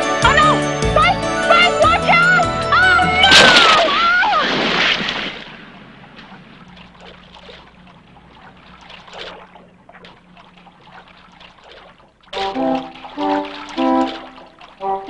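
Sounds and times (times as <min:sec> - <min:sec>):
water splash: 0:03.2 - 0:15.0
water dripping and trickling: 0:05.0 - 0:15.0.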